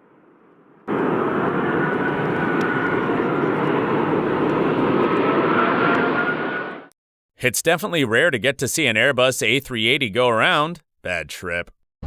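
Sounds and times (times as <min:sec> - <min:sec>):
faint high whine: 0:00.0 - 0:06.9
jet engines running: 0:00.0 - 0:07.0.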